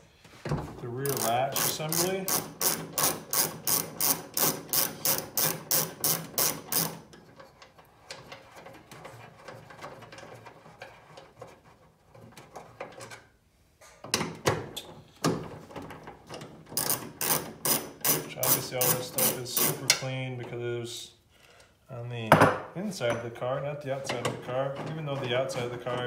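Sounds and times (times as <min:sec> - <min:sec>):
socket ratchet clicking: 0:01.1 - 0:07.0, 0:16.8 - 0:20.0.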